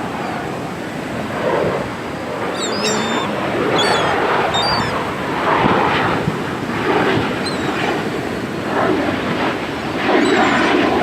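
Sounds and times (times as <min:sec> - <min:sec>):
wind: 0:00.0 - 0:11.0
gulls calling: 0:02.0 - 0:08.6.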